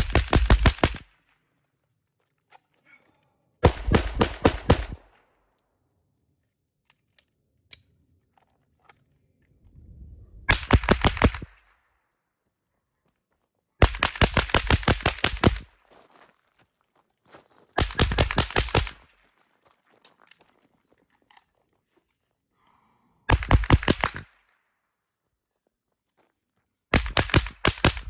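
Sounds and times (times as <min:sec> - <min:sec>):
rapid gunshots: 0:00.0 - 0:01.1, 0:03.6 - 0:05.2, 0:10.5 - 0:11.6, 0:13.8 - 0:15.7, 0:17.8 - 0:19.0, 0:23.3 - 0:24.3, 0:26.9 - 0:28.0.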